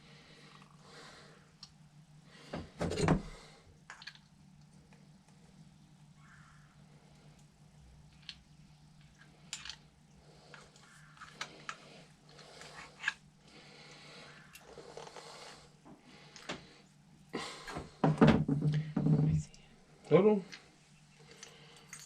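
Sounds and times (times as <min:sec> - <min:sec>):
low steady hum: 0:00.0 - 0:22.0
small metal parts clicking: 0:09.0 - 0:09.8, 0:21.2 - 0:22.0.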